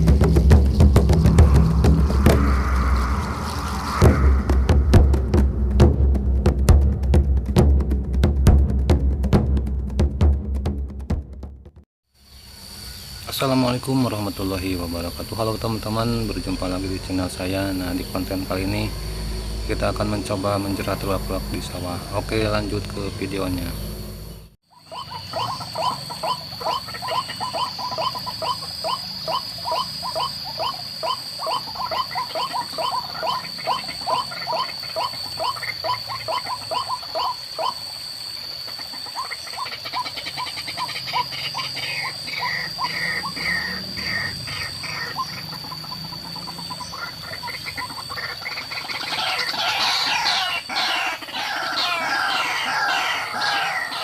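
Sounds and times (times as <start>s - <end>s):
waterhens croaking: 0.0s - 5.5s, 13.3s - 54.0s
steady high whine: 0.0s - 6.6s, 12.2s - 24.6s.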